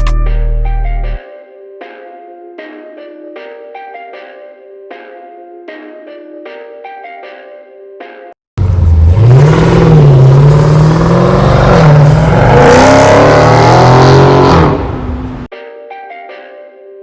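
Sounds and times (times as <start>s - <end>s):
car engine revving: 8.6s - 15.5s.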